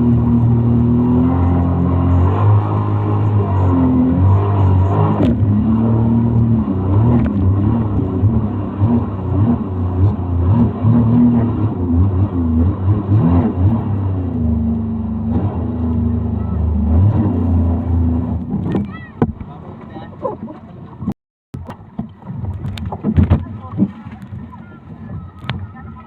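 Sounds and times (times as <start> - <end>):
motorboat engine running: 0.0 - 26.0.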